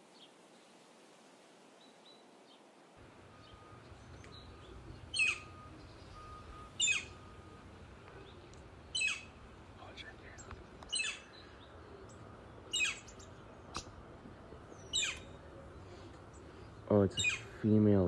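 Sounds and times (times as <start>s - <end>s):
faint bird chirps: 3.3s - 13.8s, 14.4s - 17.7s
woodpecker kyeer call: 4.0s - 5.9s, 6.5s - 7.5s, 8.9s - 9.4s, 10.4s - 11.5s, 12.7s - 13.3s, 14.8s - 15.4s, 17.2s - 17.6s.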